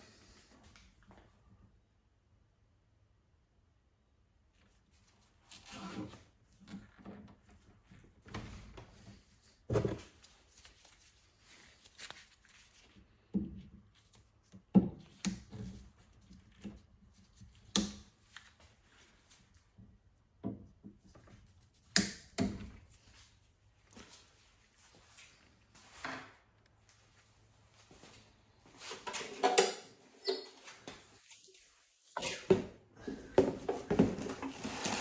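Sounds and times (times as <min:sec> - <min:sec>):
tools knocking and clunking: 0:29.0 - 0:30.4.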